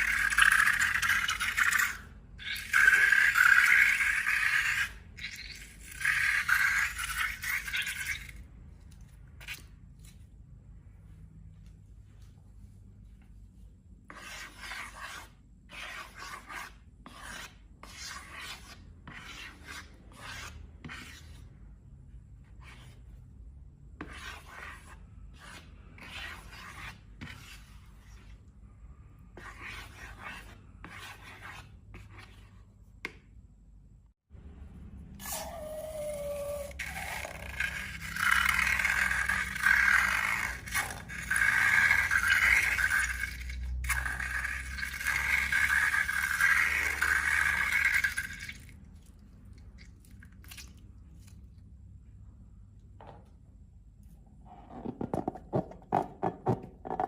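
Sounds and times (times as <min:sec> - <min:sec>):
scraping strokes: 0:14.1 - 0:21.6, 0:24.0 - 0:32.7.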